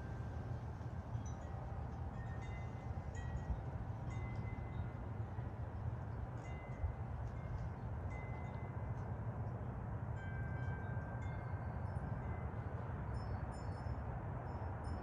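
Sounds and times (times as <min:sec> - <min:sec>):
wind chimes ringing: 0:01.1 - 0:05.3, 0:10.1 - 0:15.0.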